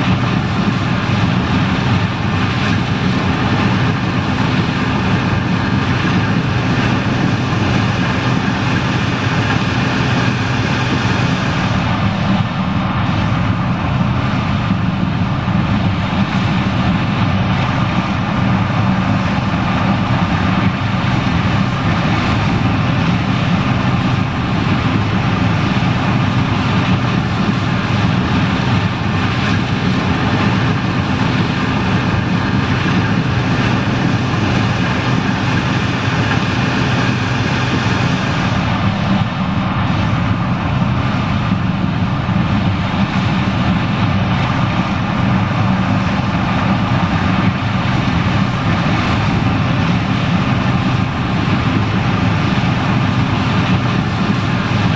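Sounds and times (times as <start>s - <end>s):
machinery whirring: 0.0s - 13.8s, 18.9s - 41.2s
diesel engine drone: 0.0s - 54.9s.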